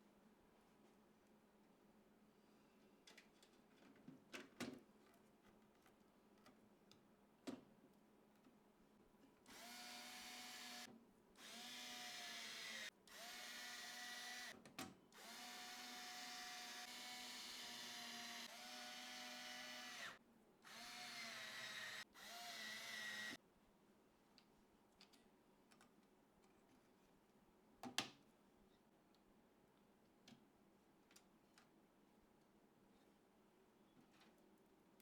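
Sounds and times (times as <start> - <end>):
electric screwdriver motor whirring: 9.5 - 14.5, 15.2 - 23.4.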